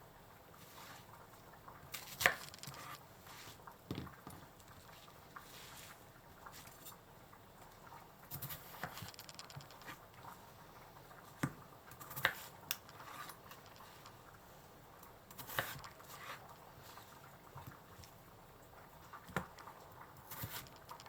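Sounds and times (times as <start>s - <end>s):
knife chopping on cutting board: 11.4s - 12.5s, 15.4s - 16.4s.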